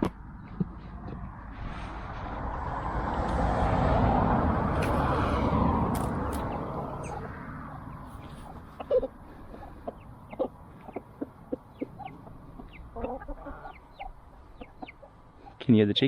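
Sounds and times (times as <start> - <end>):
car passing by: 1.0 - 11.0.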